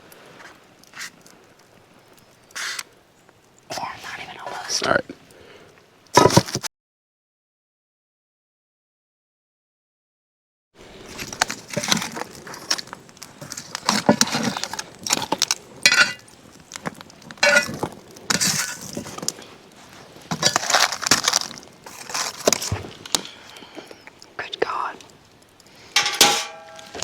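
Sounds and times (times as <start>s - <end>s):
cookware clinking and clattering: 15.9s - 16.2s, 17.4s - 18.8s, 26.0s - 27.0s
short metallic rings: 26.0s - 27.0s.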